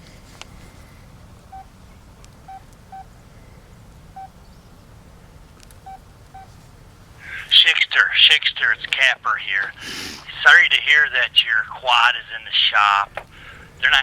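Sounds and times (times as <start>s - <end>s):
phone keypad beeps: 5.8s - 6.5s.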